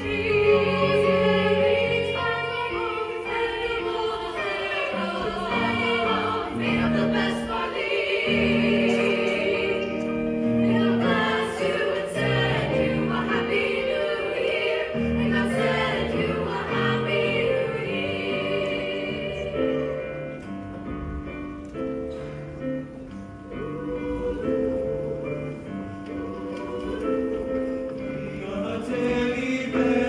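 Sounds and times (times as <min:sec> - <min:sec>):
choir singing sustained notes: 0:00.0 - 0:20.6, 0:23.5 - 0:30.0.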